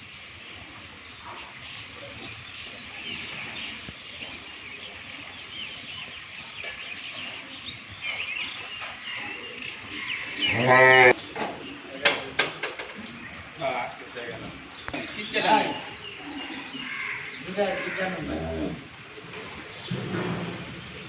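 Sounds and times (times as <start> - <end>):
small birds chirping: 0.0 - 18.3
cow mooing: 10.5 - 11.2.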